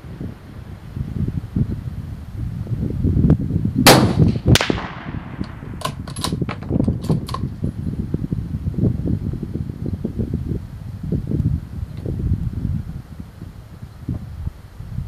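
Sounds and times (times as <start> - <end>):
wind rumble on microphone: 0.0 - 15.0
rifle shot: 3.8 - 6.5
sharp metallic clicks: 5.4 - 7.5.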